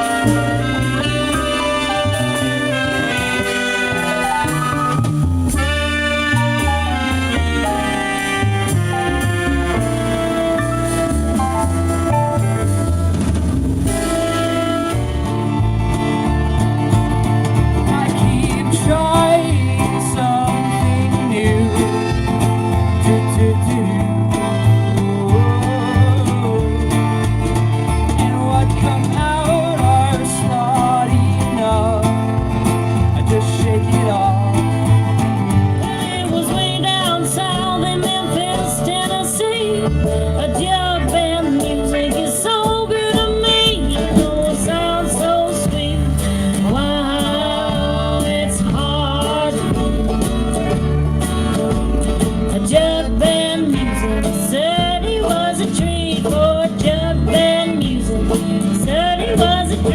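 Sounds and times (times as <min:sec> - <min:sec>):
person singing: 0:00.0 - 0:04.2, 0:17.4 - 0:59.9
bluegrass band playing: 0:00.0 - 0:59.9.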